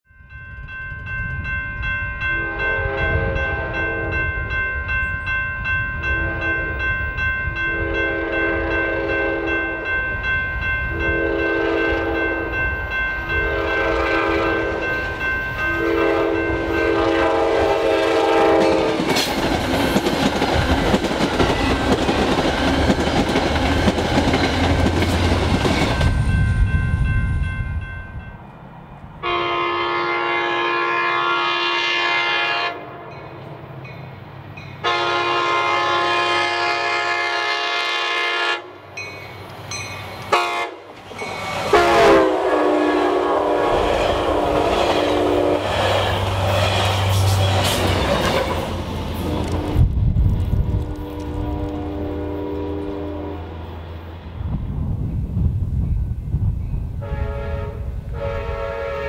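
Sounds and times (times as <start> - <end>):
train wheels on rails: 0.3 - 29.3, 38.9 - 59.0
locomotive air horn blasts: 2.3 - 4.4, 6.0 - 7.0, 7.6 - 9.8, 10.9 - 12.6, 13.3 - 19.1, 29.2 - 33.1, 34.8 - 38.8, 40.3 - 40.9, 41.6 - 46.2, 50.6 - 53.7, 57.0 - 59.0.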